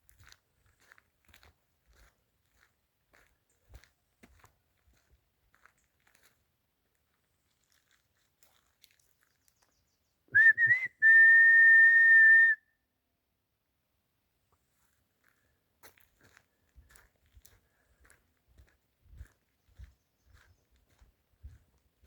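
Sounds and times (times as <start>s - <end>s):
person whistling: 10.4s - 12.6s.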